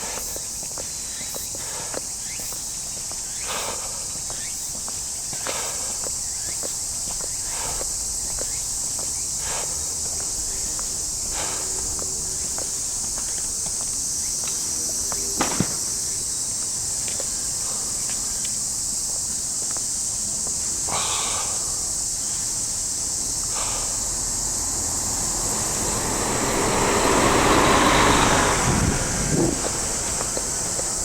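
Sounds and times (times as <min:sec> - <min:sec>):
light footsteps: 0:00.0 - 0:20.6, 0:28.0 - 0:31.0
cicadas buzzing: 0:00.0 - 0:31.0
vehicle approaching: 0:05.6 - 0:18.3, 0:20.1 - 0:31.0.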